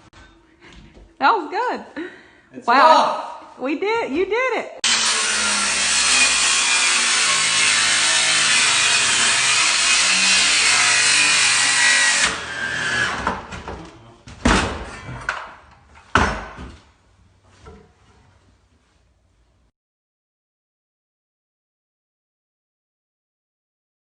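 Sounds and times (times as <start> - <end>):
power tool running: 4.8 - 13.4.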